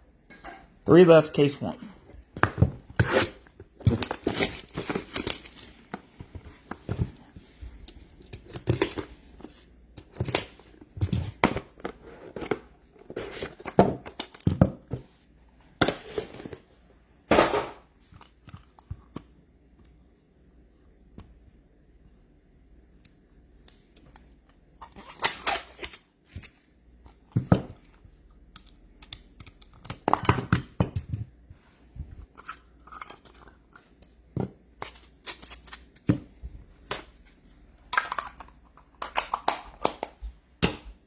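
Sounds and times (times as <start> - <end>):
plastic wrap tearing and crumpling: 4.1 - 5.8.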